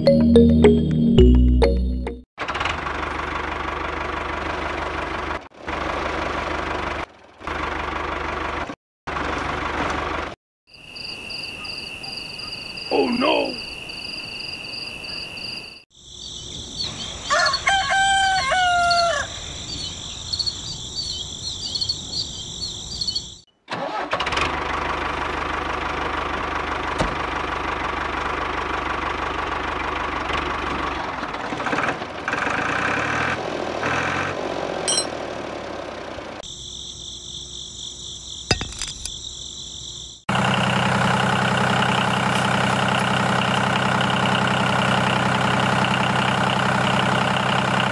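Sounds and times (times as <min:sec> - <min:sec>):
diesel engine idling: 0:02.4 - 0:10.4, 0:24.3 - 0:31.2, 0:40.3 - 0:47.9
rooster crowing: 0:17.2 - 0:19.5
high insect drone: 0:36.5 - 0:40.2.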